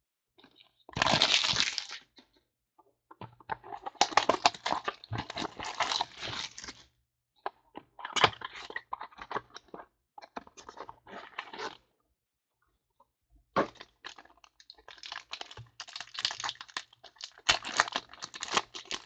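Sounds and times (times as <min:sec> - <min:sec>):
packaging crinkling and tearing: 0:01.0 - 0:02.0, 0:03.6 - 0:06.8, 0:14.0 - 0:19.0.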